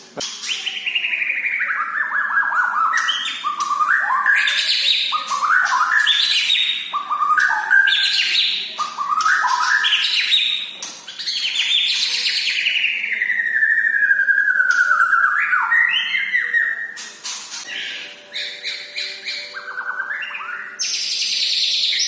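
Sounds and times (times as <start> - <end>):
bird singing rising phrases: 17.7 - 22.0.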